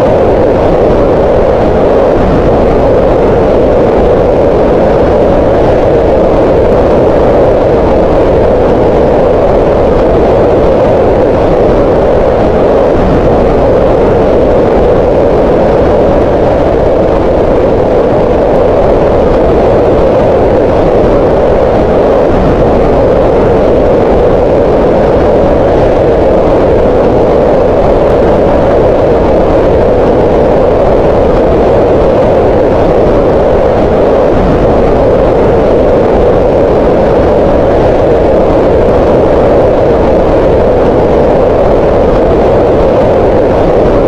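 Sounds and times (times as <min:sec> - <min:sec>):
steady rushing green noise: 0:00.0 - 0:44.0.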